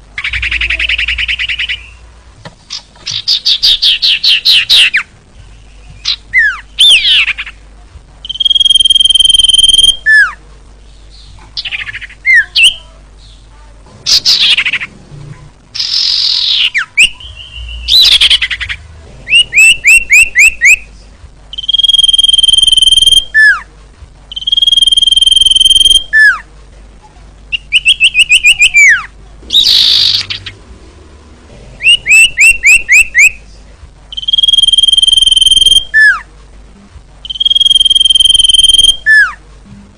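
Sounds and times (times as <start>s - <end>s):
bird calling with whistles: 8.3s - 10.3s, 15.8s - 20.8s, 21.6s - 23.6s, 24.3s - 26.4s, 31.8s - 33.4s, 34.1s - 36.2s, 37.3s - 39.4s.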